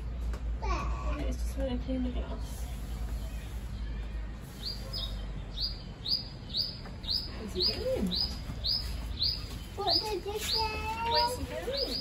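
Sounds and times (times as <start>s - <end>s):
small bird chirping: 2.4s - 12.0s.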